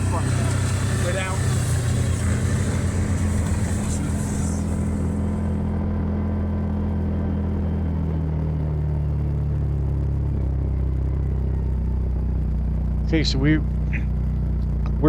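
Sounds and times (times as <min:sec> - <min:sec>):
high hiss: 0:00.0 - 0:05.5
utv engine running low hum: 0:00.0 - 0:15.0.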